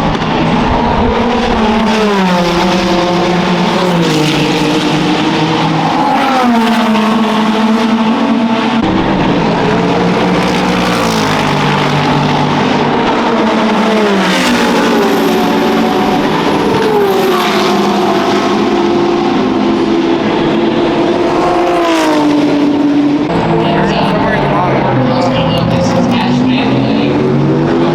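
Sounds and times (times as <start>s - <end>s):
race car engines: 0.0s - 27.9s.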